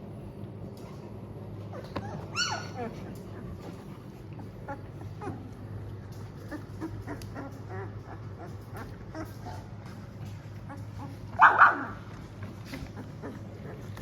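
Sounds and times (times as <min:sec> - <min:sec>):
steady low hum: 0:00.0 - 0:14.0
puppies whimpering and squeaking: 0:01.6 - 0:14.0
puppy yelp: 0:01.7 - 0:03.5, 0:06.4 - 0:09.7, 0:10.6 - 0:12.0.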